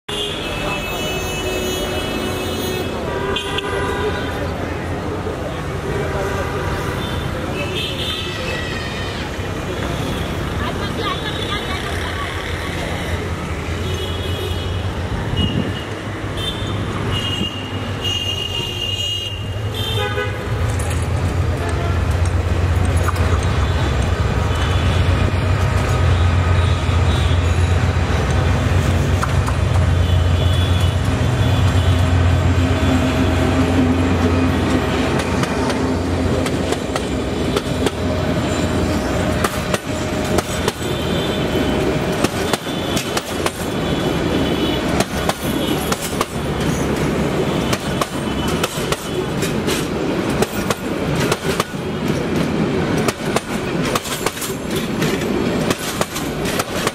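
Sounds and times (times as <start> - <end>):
locomotive horn blasts: 0.1 - 4.6, 16.4 - 20.6
train wheels clicking over rail joints: 20.6 - 24.4, 33.8 - 56.9.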